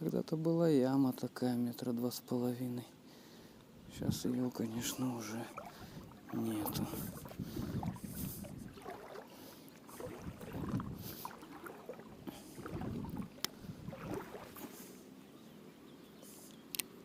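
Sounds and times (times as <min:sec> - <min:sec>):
river water sloshing around legs: 0:04.2 - 0:15.2
sharp clicks: 0:16.7 - 0:16.9.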